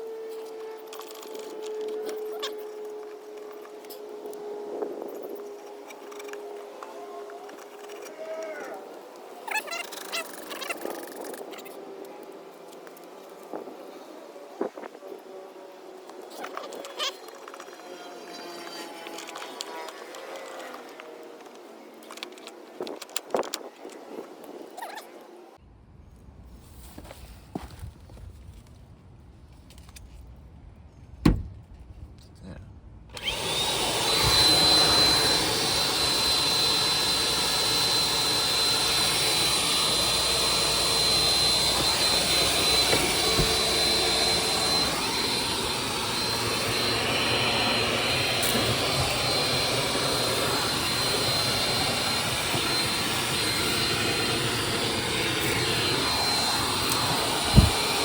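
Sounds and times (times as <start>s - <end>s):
vacuum cleaner running: 13.5s - 22.0s, 33.2s - 58.0s.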